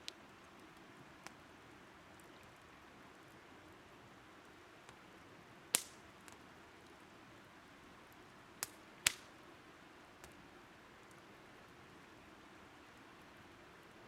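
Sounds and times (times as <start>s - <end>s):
firewood popping and crackling: 0.0s - 1.4s, 5.7s - 7.0s, 8.1s - 9.4s.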